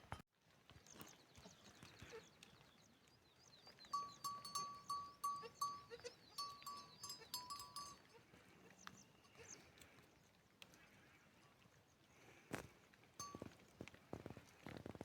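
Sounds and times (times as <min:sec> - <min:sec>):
small metal bell ringing: 0:03.9 - 0:08.2, 0:13.2 - 0:13.6.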